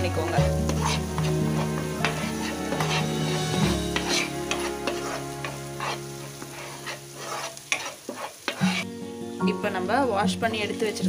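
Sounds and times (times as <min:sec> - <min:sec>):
spatula scraping pan: 0:00.0 - 0:08.9
paste sizzling in oil: 0:00.0 - 0:09.4.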